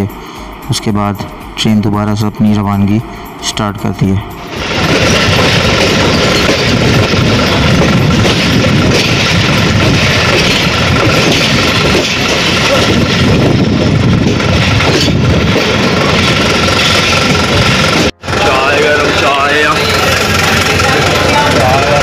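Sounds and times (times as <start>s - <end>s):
thin high tone: 0.0s - 6.8s
train wheels rumbling on track: 0.0s - 22.0s.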